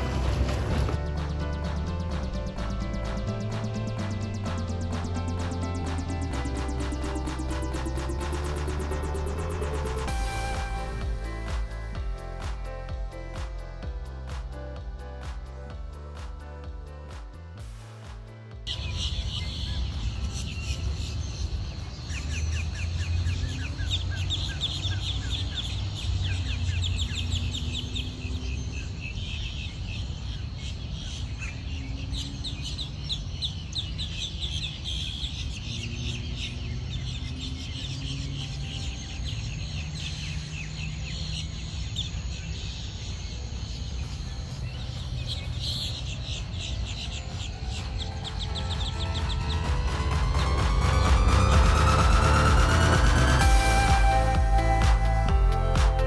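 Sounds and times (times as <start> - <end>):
steady low hum: 0.0 - 22.0
music: 0.0 - 23.4, 43.6 - 56.0.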